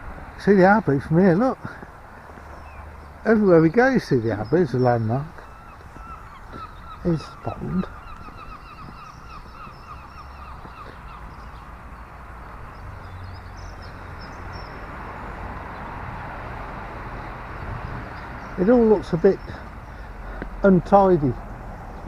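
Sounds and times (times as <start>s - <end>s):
small birds chirping faintly: 0.0s - 22.0s
bird calling harsh repeated notes: 4.3s - 11.8s.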